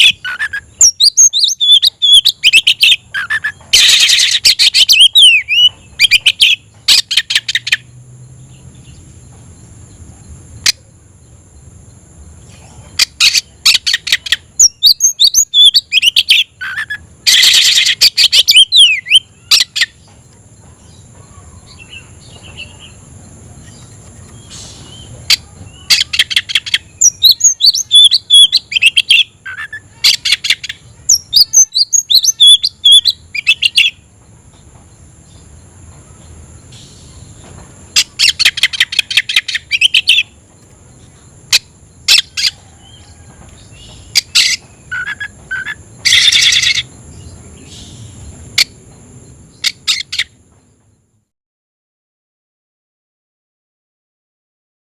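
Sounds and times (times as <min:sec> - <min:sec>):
magpie-robin singing rapid chirps: 0:00.0 - 0:07.8, 0:13.0 - 0:20.0, 0:24.4 - 0:34.0, 0:38.0 - 0:40.4, 0:44.0 - 0:46.9
faint steady high whine: 0:00.0 - 0:51.3.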